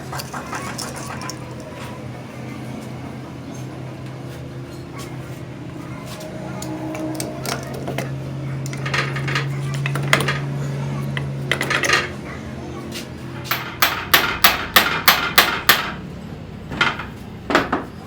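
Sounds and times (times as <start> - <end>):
machine hum: 0.0 - 18.0
metal tools clinking: 0.1 - 1.9, 6.6 - 10.5, 11.2 - 12.2.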